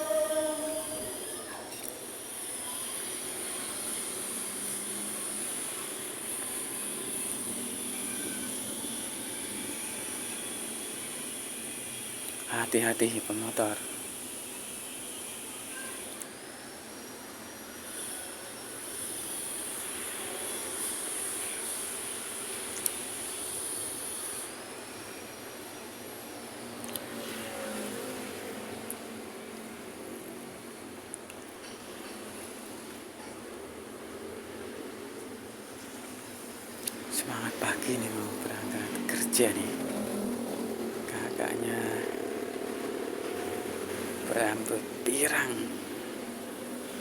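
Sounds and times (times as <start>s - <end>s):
gliding high tone: 0.0s - 1.6s
city traffic passing: 0.0s - 15.6s, 25.8s - 47.0s
constant high hiss: 0.0s - 47.0s
vehicle passing by: 37.1s - 47.0s.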